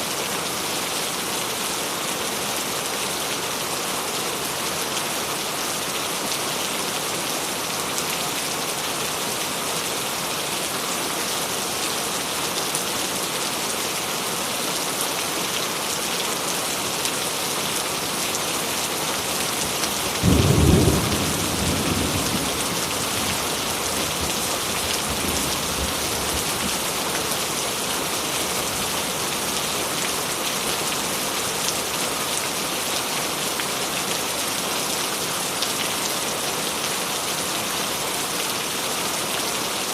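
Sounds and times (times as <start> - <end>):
heavy rain: 0.0 - 39.9
thunder rumbling: 20.2 - 26.8.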